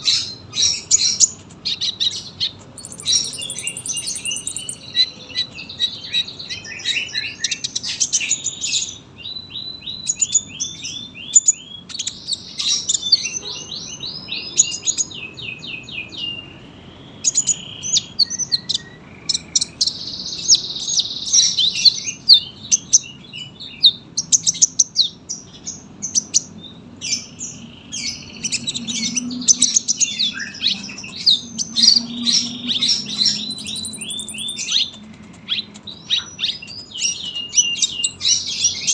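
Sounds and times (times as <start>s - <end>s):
sunbird singing chirps and trills: 0.0s - 38.9s.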